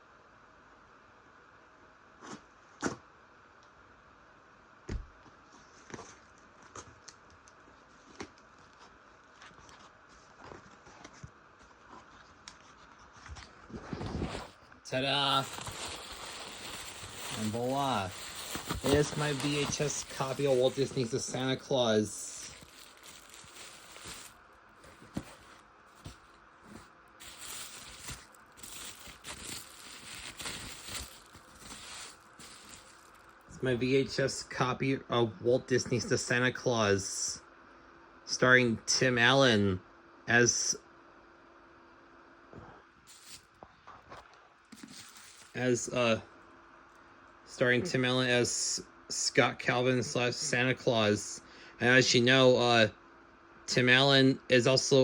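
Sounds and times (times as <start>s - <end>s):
packaging crackling and rustling: 13.4s - 33.5s, 43.1s - 43.4s, 44.8s - 45.6s.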